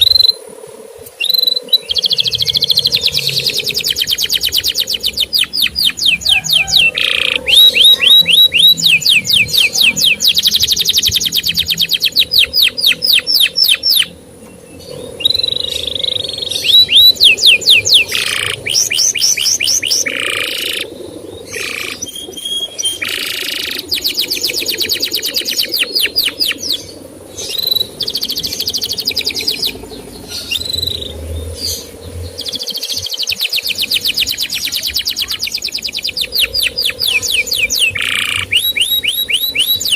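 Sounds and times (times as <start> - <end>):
canary singing trills: 0.0 - 0.4, 1.0 - 39.9.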